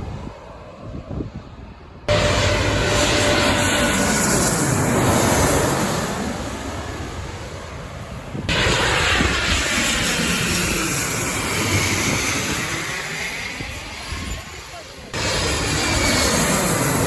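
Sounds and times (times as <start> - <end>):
aircraft engine passing: 0.0 - 17.0.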